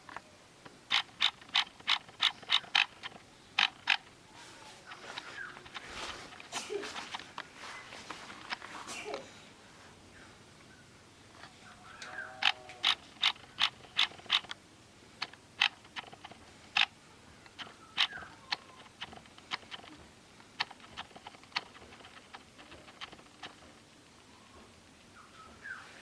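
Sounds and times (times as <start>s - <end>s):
small mechanism clicking: 0.0s - 4.2s, 11.4s - 14.6s, 15.2s - 24.3s.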